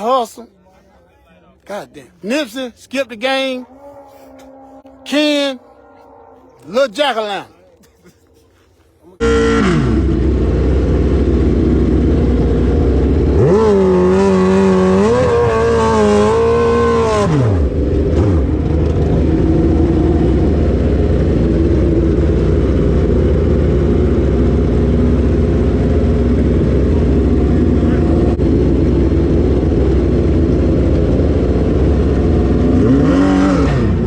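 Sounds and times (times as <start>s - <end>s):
high engine note: 9.2s - 34.0s
loud steady rumble: 9.2s - 34.0s
motorcycle engine revving: 9.2s - 34.0s.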